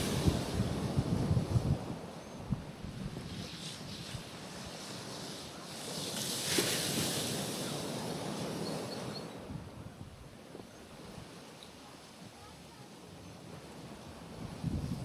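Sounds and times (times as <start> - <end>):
sea waves washing onto rocks: 0.0 - 9.5.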